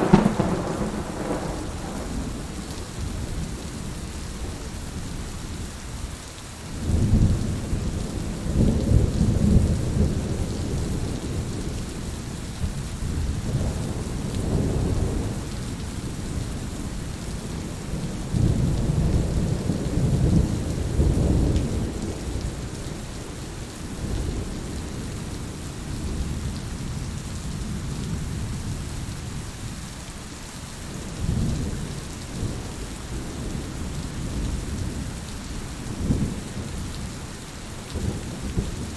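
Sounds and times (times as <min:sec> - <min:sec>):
thunder rumbling: 0:00.0 - 0:03.8
rain: 0:00.0 - 0:38.9.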